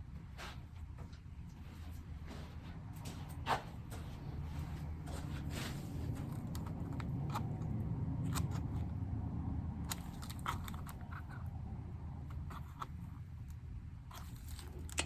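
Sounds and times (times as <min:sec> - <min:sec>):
low steady hum: 0:00.0 - 0:15.0
plastic keycaps clicking and scraping: 0:06.1 - 0:09.0, 0:09.8 - 0:11.6, 0:12.2 - 0:15.0.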